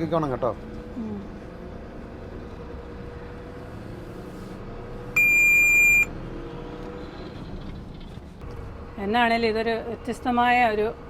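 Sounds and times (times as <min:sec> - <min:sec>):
road noise: 0:00.0 - 0:11.0
high electronic beep: 0:05.2 - 0:06.1.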